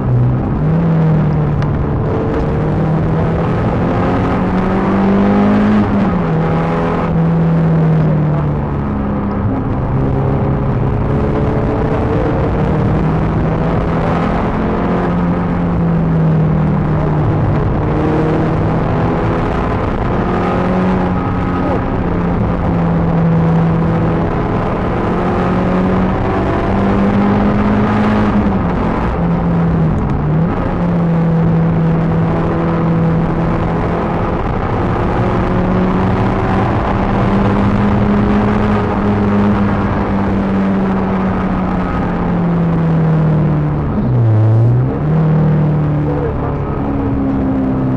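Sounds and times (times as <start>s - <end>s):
car engine at high revs: 0.0s - 47.9s.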